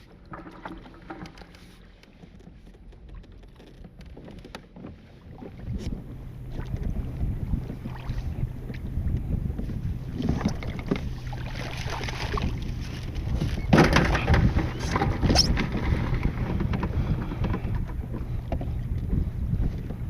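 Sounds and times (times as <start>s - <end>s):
wind buffeting microphone: 3.9s - 20.0s
water splashing and dripping: 10.3s - 12.7s.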